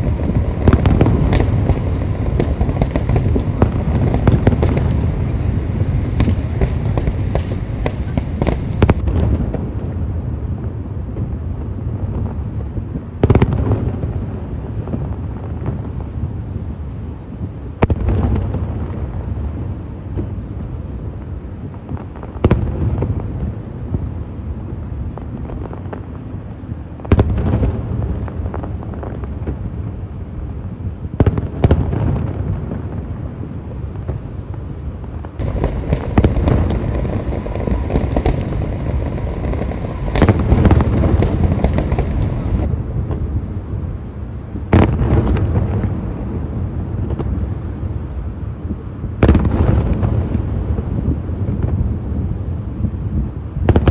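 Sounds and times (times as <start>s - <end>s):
low rumbling echo: 0.0s - 10.0s, 35.3s - 44.0s
firework shells booming: 0.0s - 11.4s, 35.2s - 43.6s
fireworks crackling: 0.0s - 53.9s.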